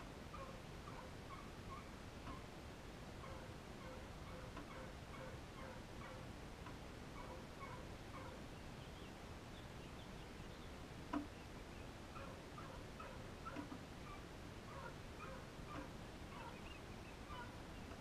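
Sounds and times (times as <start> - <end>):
faint bird chirps: 7.2 - 18.0.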